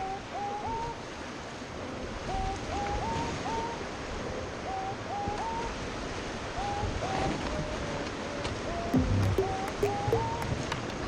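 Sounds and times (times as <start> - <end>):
short rising melody: 9.0 - 10.6.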